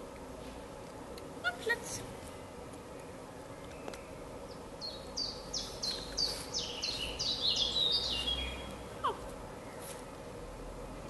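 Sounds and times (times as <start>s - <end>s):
songbird singing: 1.6s - 10.1s.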